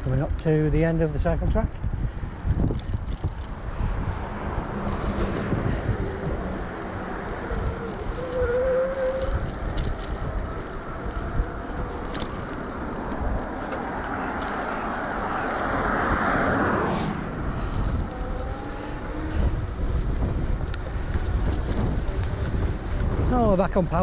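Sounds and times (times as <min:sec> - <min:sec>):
wind buffeting microphone: 0:00.0 - 0:24.0
low rumble: 0:01.9 - 0:23.4
rushing swell: 0:04.0 - 0:19.8.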